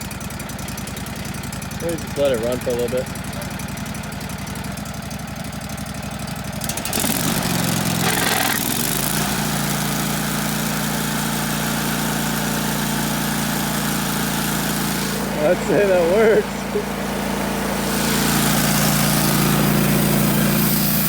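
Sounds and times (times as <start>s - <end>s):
sawmill engine running: 0.0s - 21.0s.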